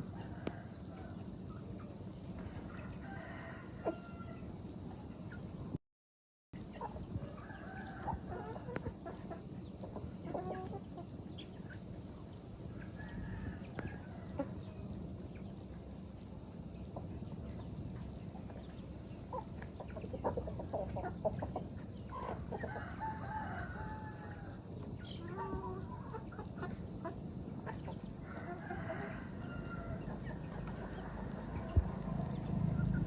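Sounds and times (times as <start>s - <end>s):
chickens clucking: 0.0s - 5.6s, 6.6s - 33.0s
low background rumble: 6.6s - 33.0s.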